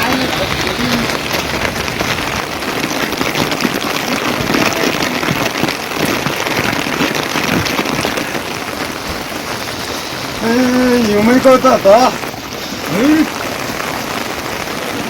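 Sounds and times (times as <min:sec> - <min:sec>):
rain patter: 0:00.0 - 0:15.0.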